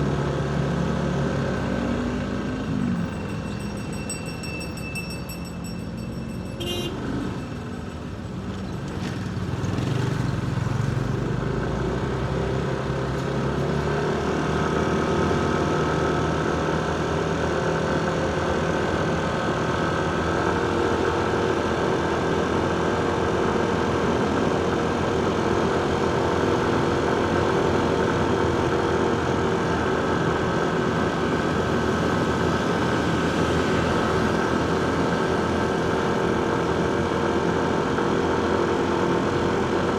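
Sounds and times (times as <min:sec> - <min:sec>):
road noise: 0:00.0 - 0:39.9
motorcycle engine: 0:00.4 - 0:39.9.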